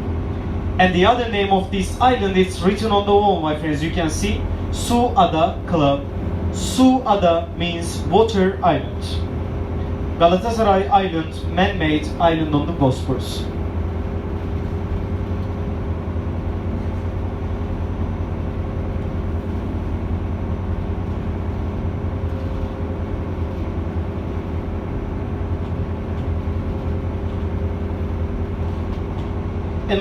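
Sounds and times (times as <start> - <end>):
steady higher tone: 0.0 - 13.5
ship engine droning hum: 0.0 - 30.0.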